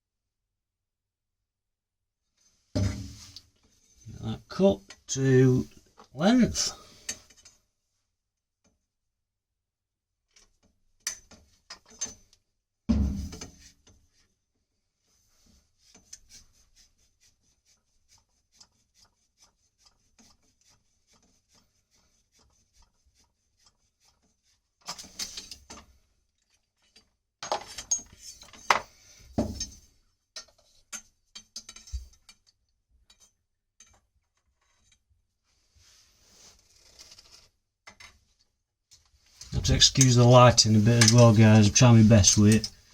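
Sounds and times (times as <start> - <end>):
metal knocks and clatter: 2.8 - 3.3, 12.9 - 13.6
metal pipe rubbing and scraping: 39.2 - 42.9.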